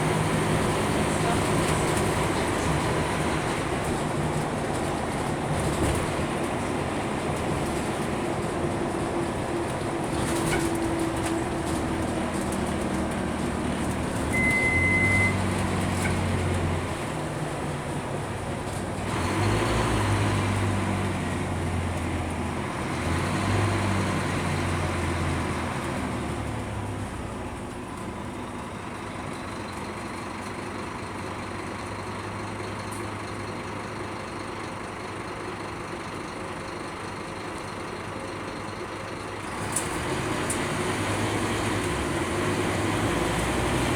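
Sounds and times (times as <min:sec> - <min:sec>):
bus diesel engine running: 0:00.0 - 0:43.9
short high beep: 0:14.3 - 0:15.4.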